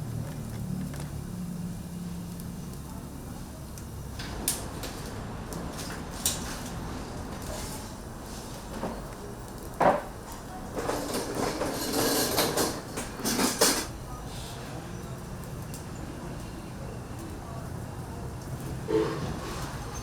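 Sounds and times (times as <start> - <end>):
kitchen clatter: 9.7 - 14.0.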